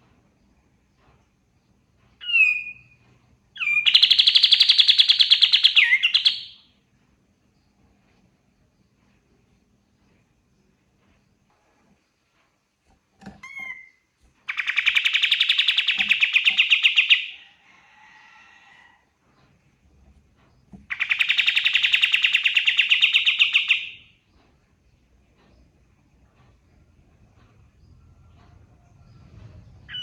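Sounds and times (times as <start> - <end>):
songbird trilling: 3.6 - 6.6, 13.4 - 17.4, 20.9 - 24.0.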